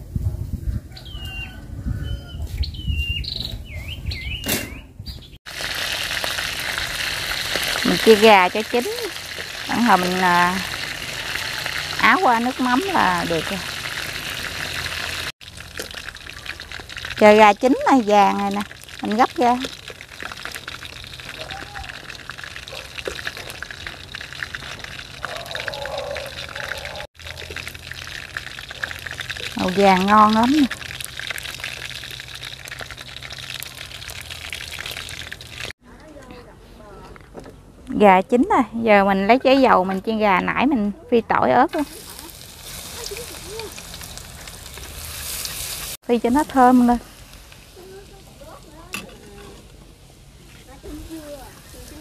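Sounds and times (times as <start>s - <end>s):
small bird whistling: 1.0s - 5.3s
chicken frying in oil: 5.5s - 35.8s, 41.7s - 52.0s.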